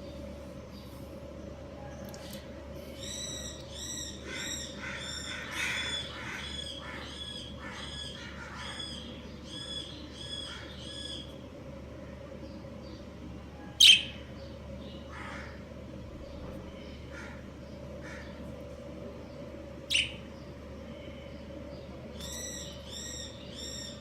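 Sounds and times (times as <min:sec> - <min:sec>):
steady low hum: 0:00.0 - 0:24.0
budgerigars chirping: 0:13.8 - 0:14.2, 0:19.9 - 0:20.4
soft bird chattering: 0:13.8 - 0:14.3, 0:19.9 - 0:20.5.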